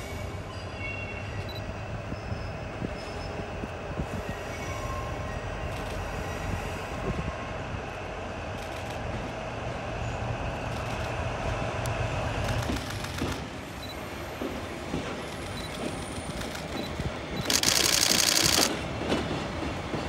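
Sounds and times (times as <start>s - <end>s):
diesel locomotive engine rumble: 0.0s - 20.0s
train wheels on rails: 0.0s - 20.0s.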